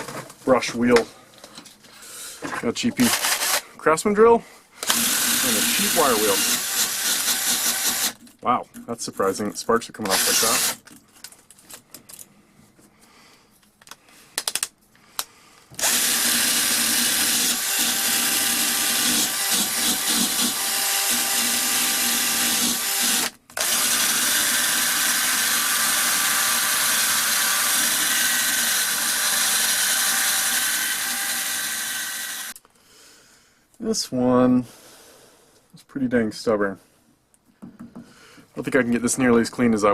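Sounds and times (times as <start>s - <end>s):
power drill with wire wheel whirring: 3.0s - 3.7s, 4.8s - 8.2s, 10.0s - 10.9s, 15.7s - 32.6s.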